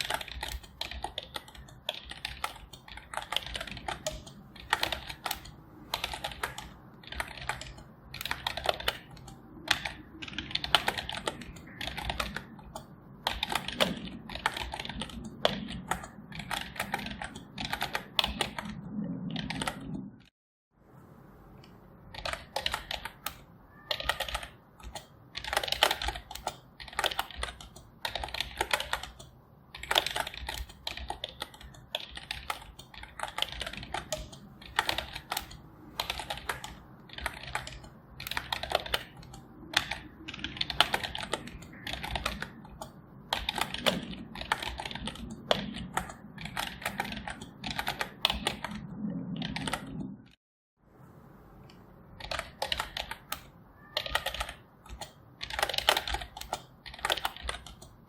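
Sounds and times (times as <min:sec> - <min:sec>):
computer keyboard typing: 0:00.0 - 0:20.3, 0:21.6 - 0:50.4, 0:51.6 - 0:58.0.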